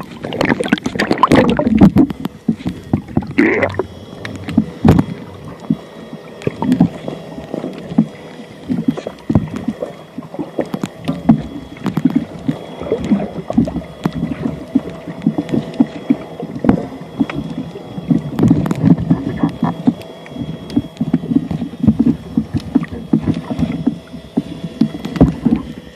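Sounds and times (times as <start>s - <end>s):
sharp clicks and knocks: 0.0s - 5.8s, 10.6s - 17.5s
faint high whine: 0.0s - 25.9s
water sloshing and bubbling: 0.0s - 25.9s.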